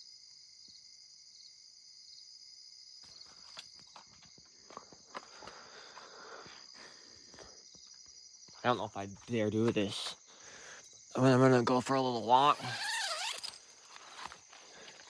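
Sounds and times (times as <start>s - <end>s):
crickets chirring: 0.0s - 15.0s
rustling: 12.5s - 15.0s.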